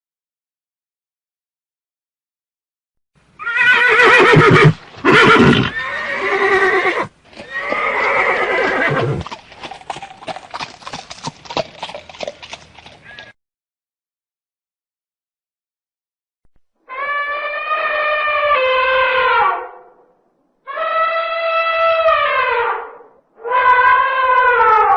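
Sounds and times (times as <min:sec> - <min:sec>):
horse whinnying: 0:03.4 - 0:10.6, 0:20.7 - 0:24.9
hooves clip-clopping: 0:04.6 - 0:13.4.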